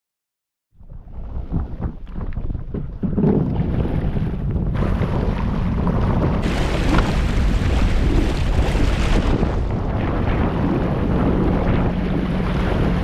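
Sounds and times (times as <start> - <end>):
wind buffeting microphone: 0.8 - 13.0
watercraft engine: 3.5 - 13.0
water rushing: 6.4 - 10.6.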